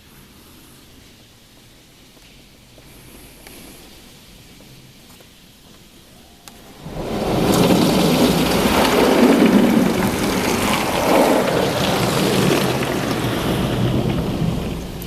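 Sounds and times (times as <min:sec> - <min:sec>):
water jets drumming on car body: 0:06.6 - 0:15.0.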